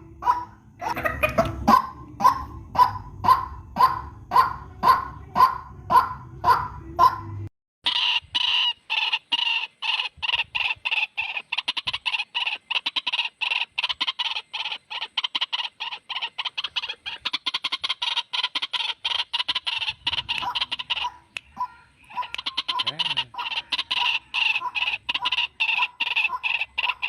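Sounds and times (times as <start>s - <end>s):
bird harsh repeated calls: 0.0s - 27.0s.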